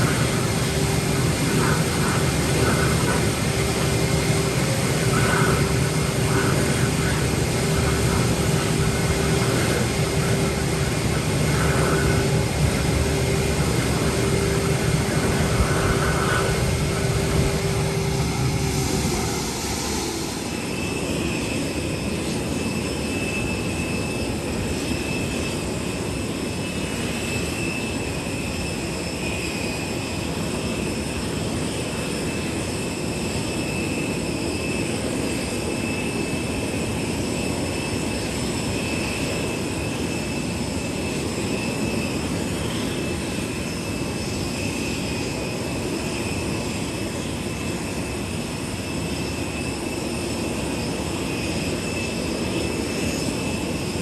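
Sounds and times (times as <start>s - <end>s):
high thin whine: 0.0s - 21.4s
jet engine and airflow rumble: 0.0s - 54.0s.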